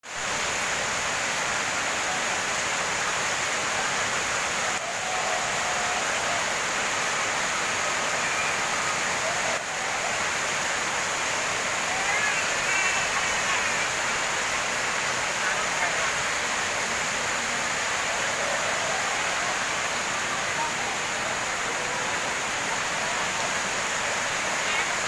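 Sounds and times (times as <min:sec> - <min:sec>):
heavy rain falling: 0:00.0 - 0:25.0
running water: 0:00.0 - 0:25.0.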